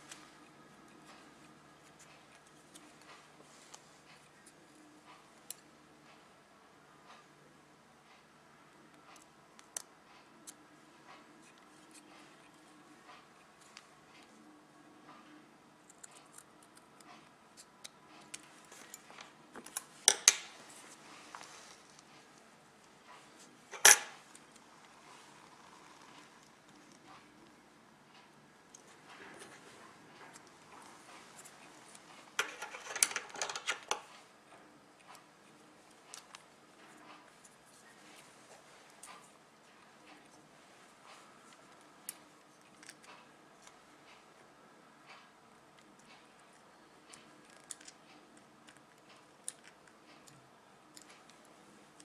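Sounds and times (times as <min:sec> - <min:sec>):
scissors snipping: 0:15.9 - 0:19.0.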